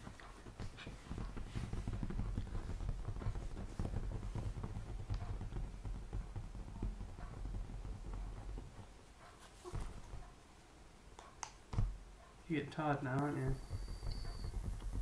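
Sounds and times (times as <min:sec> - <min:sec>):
parrot tapping and scuffling: 0:00.0 - 0:10.4.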